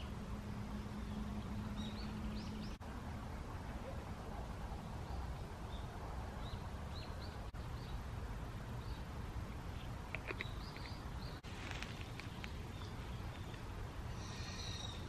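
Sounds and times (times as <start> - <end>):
small bird chirps: 9.7 - 15.0.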